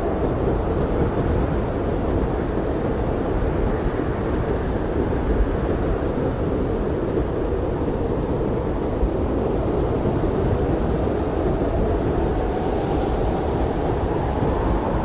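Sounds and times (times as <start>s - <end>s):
blizzard wind rushing: 0.0s - 15.0s.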